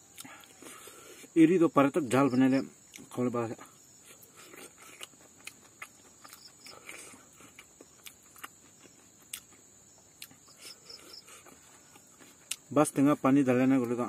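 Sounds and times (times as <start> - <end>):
high insect drone: 0.0 - 14.0
person chewing with mouth clicks: 0.1 - 0.9, 4.1 - 9.6, 10.2 - 12.7.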